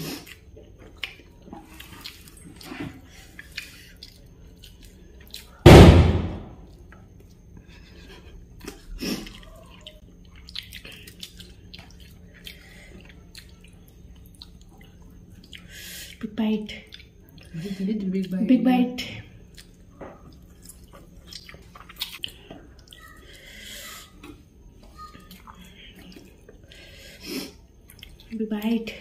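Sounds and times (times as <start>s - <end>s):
mouth chewing and lip smacks: 0.0s - 5.6s, 8.6s - 16.2s, 16.8s - 17.6s, 19.3s - 28.3s
loud thump: 5.7s - 6.6s.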